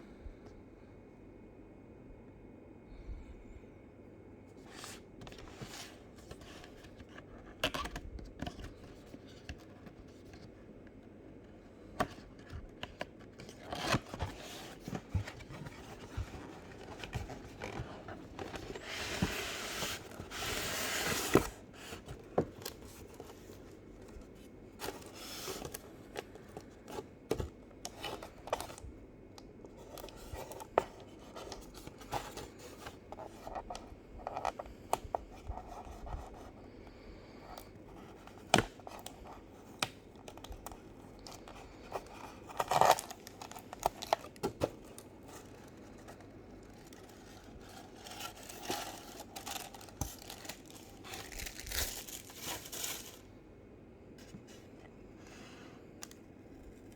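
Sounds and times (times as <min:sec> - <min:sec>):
packaging clicks and crinkles: 0:12.0 - 0:28.9, 0:37.5 - 0:53.3
packaging tearing: 0:48.2 - 0:53.2.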